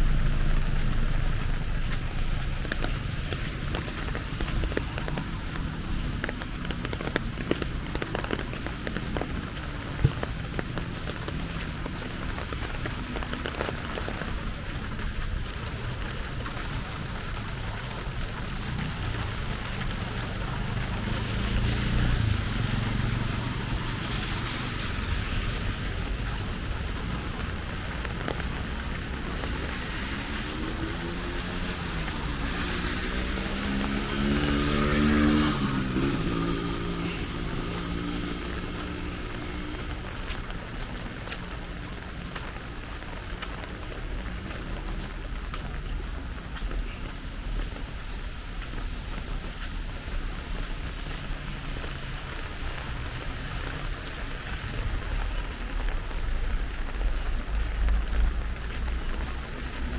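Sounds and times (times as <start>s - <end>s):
steady rain falling: 0.0s - 59.9s
vehicle engine running: 0.0s - 59.9s
water drops dripping close by: 0.0s - 59.9s
engine speeding up: 17.9s - 41.2s.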